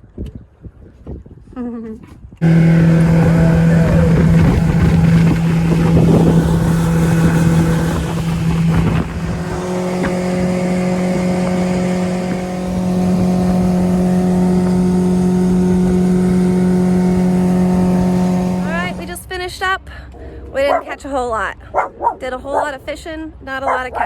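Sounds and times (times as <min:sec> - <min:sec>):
boat motor running: 0:02.4 - 0:19.4.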